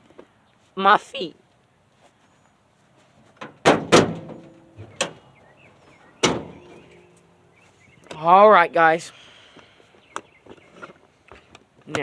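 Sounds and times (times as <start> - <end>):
metal clunks and bangs: 3.4 - 5.2, 6.2 - 7.0.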